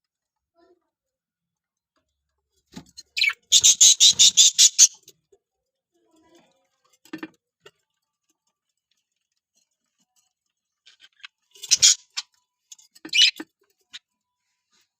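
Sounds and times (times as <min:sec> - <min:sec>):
budgerigars clicking: 0:03.2 - 0:05.0, 0:11.6 - 0:12.2.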